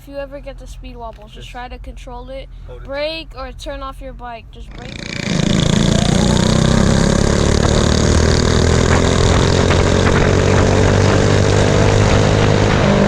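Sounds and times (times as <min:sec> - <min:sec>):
mini bike engine accelerating: 0:04.7 - 0:13.0.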